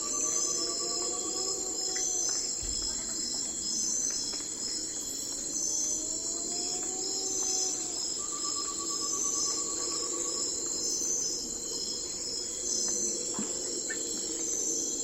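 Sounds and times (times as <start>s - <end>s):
crickets and insects chorus: 0.0s - 15.0s.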